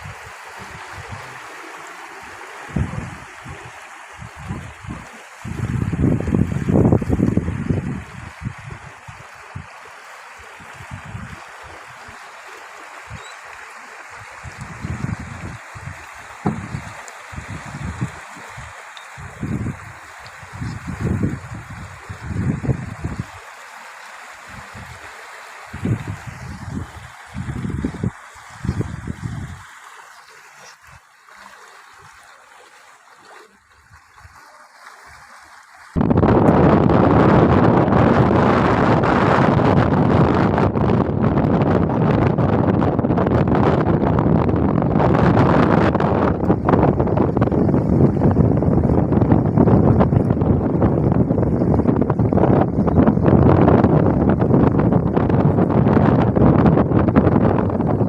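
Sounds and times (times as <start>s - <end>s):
wind buffeting microphone: 0.0s - 1.5s, 2.2s - 9.7s, 10.6s - 12.1s, 14.4s - 23.3s, 25.7s - 29.6s, 36.0s - 58.0s
water rushing and splashing: 0.0s - 58.0s.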